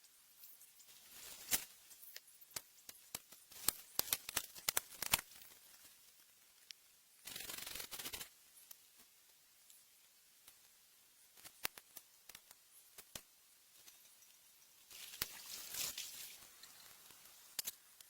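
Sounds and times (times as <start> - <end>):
sharp clicks and snaps: 1.4 - 5.6, 6.5 - 8.9, 11.3 - 14.4, 16.6 - 18.0
rustling or scraping: 13.8 - 17.3.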